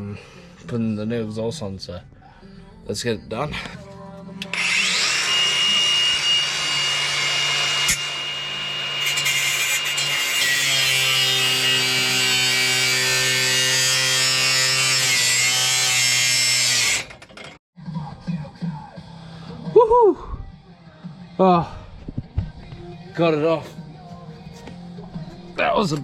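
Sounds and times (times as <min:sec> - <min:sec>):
angle grinder cutting metal: 0:04.4 - 0:17.6.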